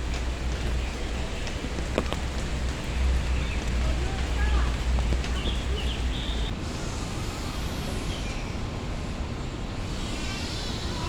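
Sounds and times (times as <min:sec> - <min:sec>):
road traffic noise: 0:00.0 - 0:08.4.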